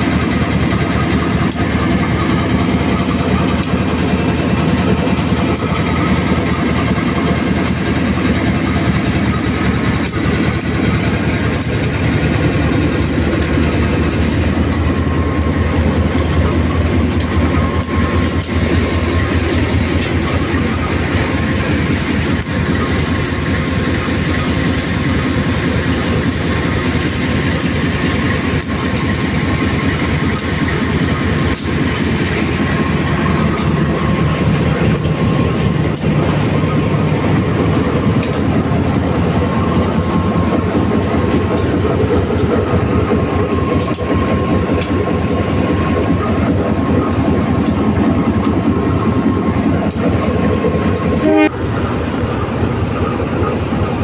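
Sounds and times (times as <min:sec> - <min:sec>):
diesel train rumble: 0:00.0 - 0:54.0
sharp clicks: 0:17.1 - 0:18.8, 0:34.9 - 0:38.6, 0:39.7 - 0:42.8, 0:43.7 - 0:48.6.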